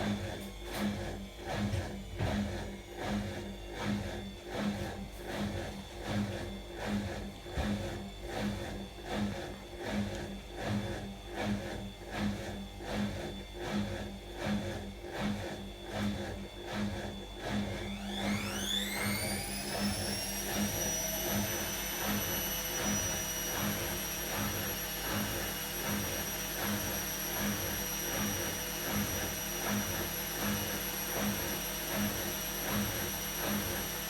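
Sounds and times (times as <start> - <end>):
washing machine motor whine: 0.0 - 34.0.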